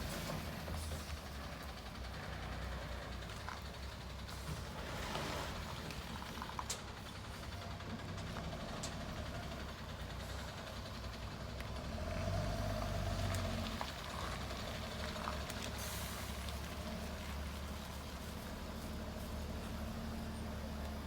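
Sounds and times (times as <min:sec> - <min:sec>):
garbage truck engine running: 0:00.0 - 0:21.0.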